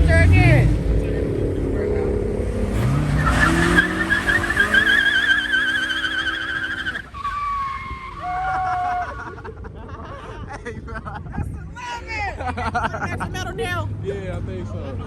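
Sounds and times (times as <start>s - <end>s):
car engine revving: 0.0s - 8.5s
tyres squealing: 2.7s - 9.2s.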